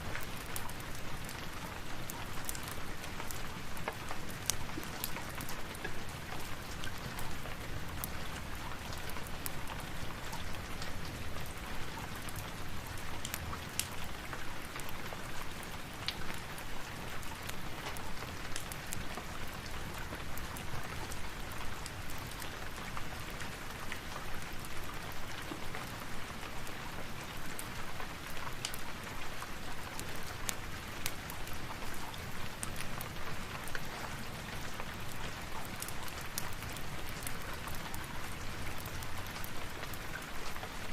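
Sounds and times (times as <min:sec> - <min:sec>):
steady rain falling: 0:00.0 - 0:40.9
wood fire crackling: 0:00.1 - 0:10.6, 0:11.4 - 0:16.5, 0:27.4 - 0:40.9.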